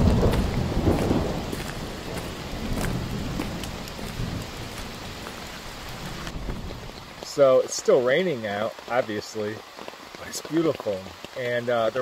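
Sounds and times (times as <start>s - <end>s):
distant thunder rumble: 0.0s - 7.0s
raindrops ticking: 0.0s - 12.0s
steady rain falling: 0.0s - 12.0s.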